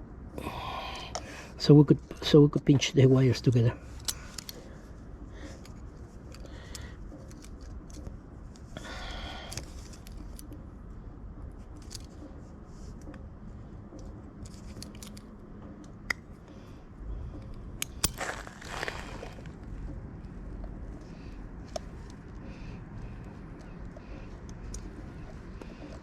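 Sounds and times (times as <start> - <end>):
small tool clicks: 17.4 - 19.1.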